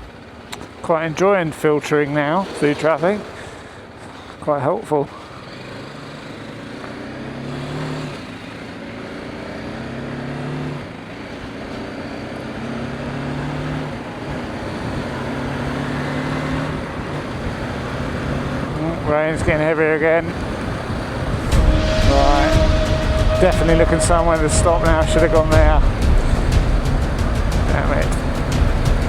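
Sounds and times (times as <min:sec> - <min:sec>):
wind and road noise: 0:00.0 - 0:29.0
motorcycle engine running: 0:05.3 - 0:21.6, 0:25.6 - 0:29.0.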